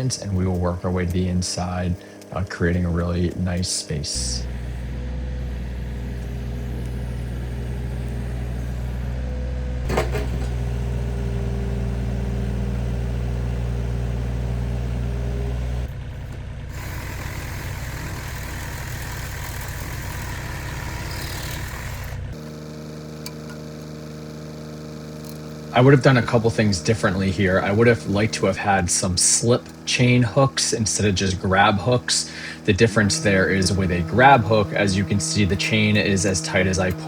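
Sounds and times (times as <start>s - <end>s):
excavator diesel engine running: 0.0s - 22.4s, 24.2s - 37.0s.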